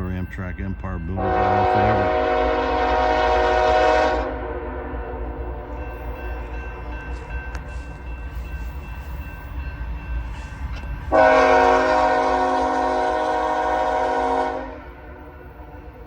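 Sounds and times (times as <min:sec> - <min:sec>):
locomotive engines rumbling: 0:00.0 - 0:16.0
locomotive air horn blast: 0:01.2 - 0:05.8, 0:11.1 - 0:15.7.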